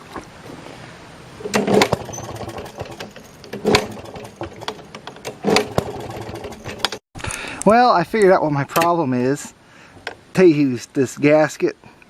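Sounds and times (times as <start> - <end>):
small engine sputtering and stalling: 1.5 - 7.0.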